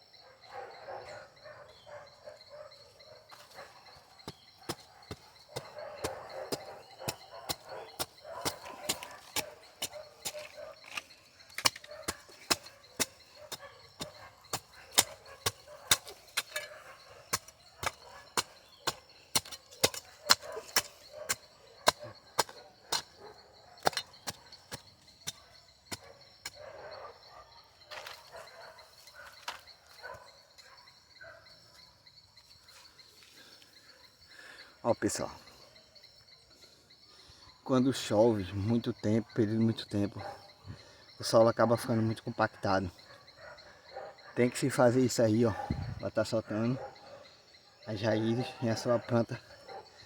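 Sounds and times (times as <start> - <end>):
garden tool chopping into soil: 4.2 - 23.1.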